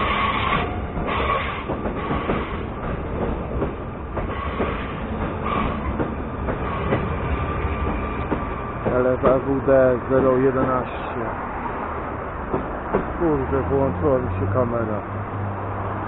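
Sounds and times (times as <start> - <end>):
wheels clicking over rail joints: 0.0 - 11.1, 12.4 - 13.2
train rumbling on rails: 0.0 - 16.0.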